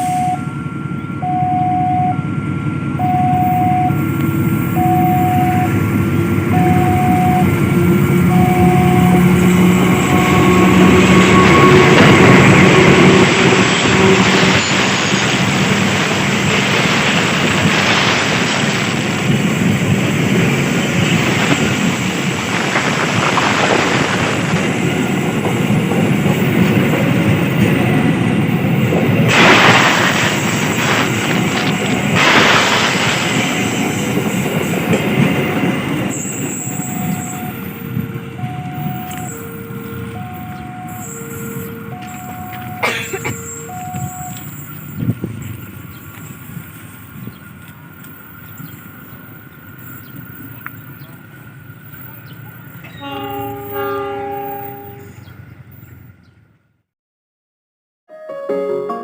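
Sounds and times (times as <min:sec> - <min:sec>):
crossing alarm beeping: 0:00.0 - 0:56.2
locomotive diesel engine: 0:00.0 - 0:56.7.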